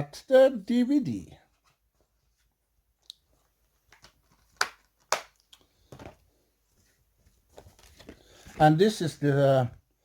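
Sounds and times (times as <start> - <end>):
cardboard rustle: 6.0 - 9.3.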